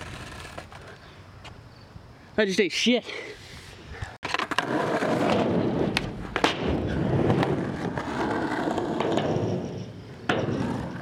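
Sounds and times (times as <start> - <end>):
skateboard wheels rolling: 0.0 - 1.6, 3.6 - 11.0
skateboard clacks: 4.2 - 11.0.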